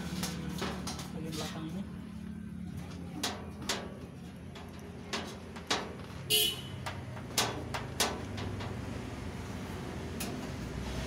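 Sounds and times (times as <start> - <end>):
metal panel knocks and clicks: 3.2 - 8.9.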